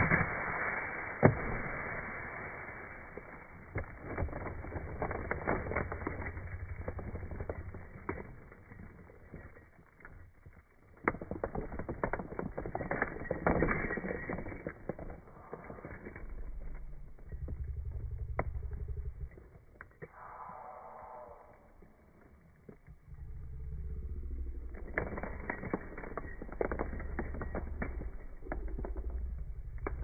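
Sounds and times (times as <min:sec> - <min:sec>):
small metal parts clicking and knocking: 0:03.7 - 0:20.2, 0:22.5 - 0:30.0
low steady hum: 0:15.0 - 0:30.0.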